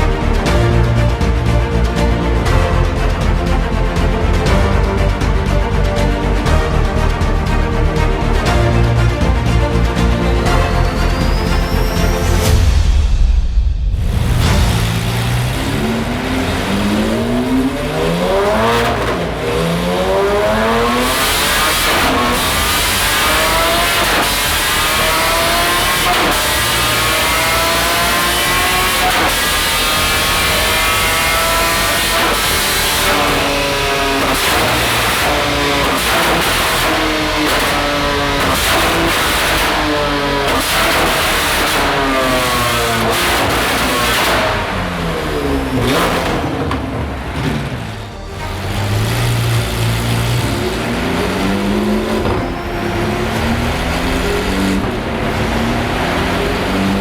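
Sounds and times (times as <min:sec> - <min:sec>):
car engine revving hard: 0:14.0 - 0:57.0.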